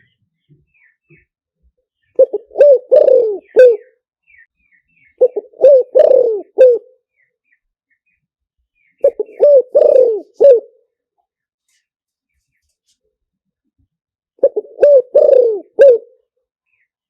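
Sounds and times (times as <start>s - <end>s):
dove cooing: 2.2s - 4.0s, 5.2s - 6.9s, 9.0s - 10.8s, 14.4s - 16.2s.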